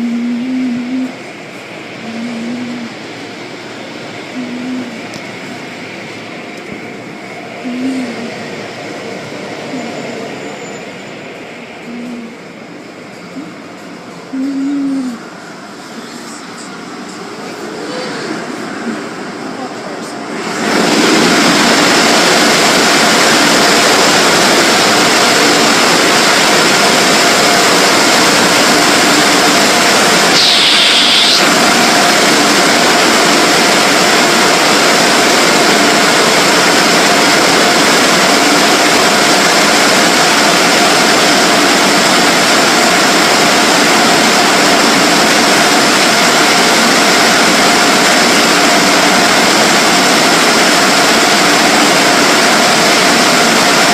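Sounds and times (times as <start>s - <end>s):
car wash air dryers blowing: 0.0s - 53.9s
brief high whine: 27.8s - 34.6s.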